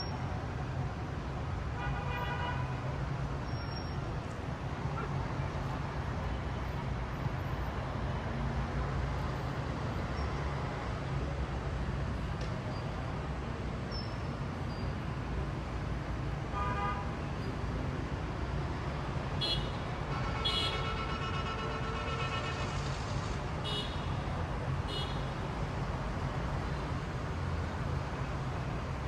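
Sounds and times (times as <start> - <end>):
city street traffic rumble: 0.0 - 29.0
vehicle horn: 1.8 - 2.7, 16.6 - 17.1, 19.4 - 22.9.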